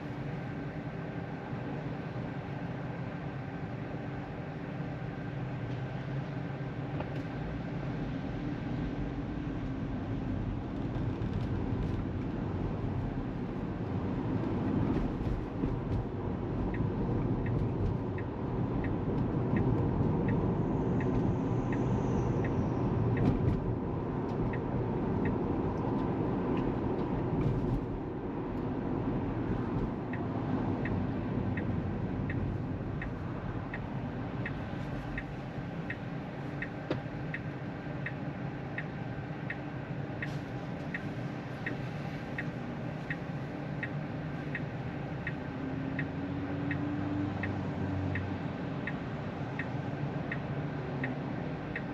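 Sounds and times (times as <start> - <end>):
road and tyre noise in car cabin: 0.0 - 51.9
turn signal ticking: 14.4 - 51.9.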